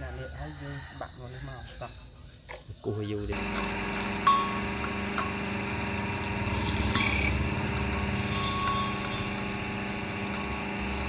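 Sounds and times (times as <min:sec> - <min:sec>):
small machine humming: 0:03.3 - 0:11.0.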